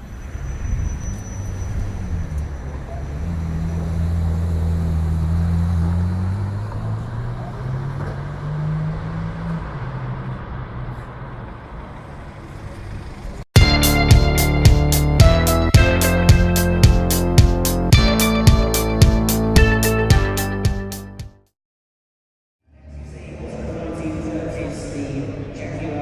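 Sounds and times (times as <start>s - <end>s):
road noise: 0.0s - 21.0s, 22.6s - 26.0s
car engine accelerating: 1.4s - 19.0s.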